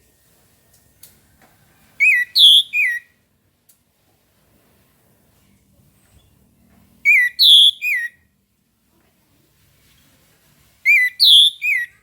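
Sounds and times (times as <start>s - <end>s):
thrush singing whistled notes: 2.0s - 3.2s, 7.0s - 8.3s, 10.9s - 12.0s.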